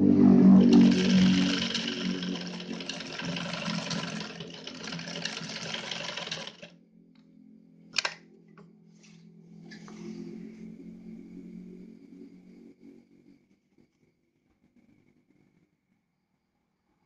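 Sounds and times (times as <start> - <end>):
sewing machine stitching: 0.6 - 6.7.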